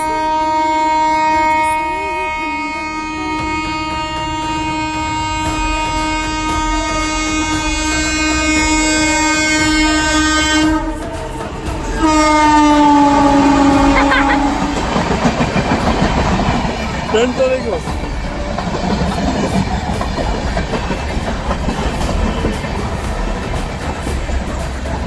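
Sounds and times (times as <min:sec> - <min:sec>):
locomotive horn blast: 0:00.0 - 0:18.3
low rumble of moving train: 0:00.0 - 0:25.0.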